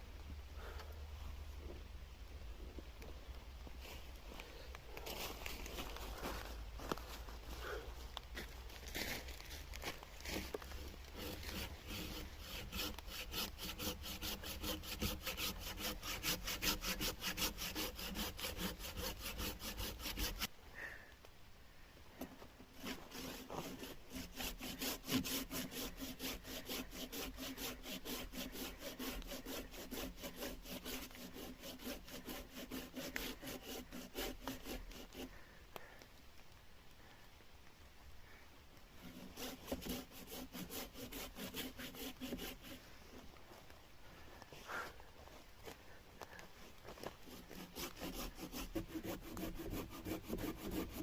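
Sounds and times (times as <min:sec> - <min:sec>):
saw cutting wood: 0:10.2 - 0:20.5, 0:22.8 - 0:35.3, 0:39.0 - 0:42.9, 0:47.0 - 0:51.0.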